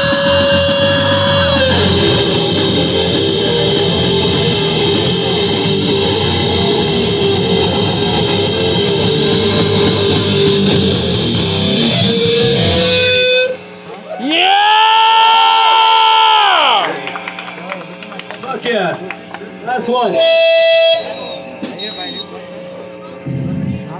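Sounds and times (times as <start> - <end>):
live rock band playing: 0.0 - 13.7, 23.3 - 23.9
held guitar note ringing: 0.0 - 13.8, 19.9 - 23.9.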